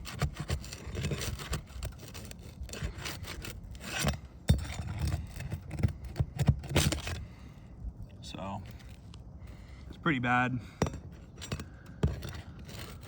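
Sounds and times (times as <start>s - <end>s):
flat bar scraping shingles: 0.0s - 7.3s, 10.8s - 13.0s.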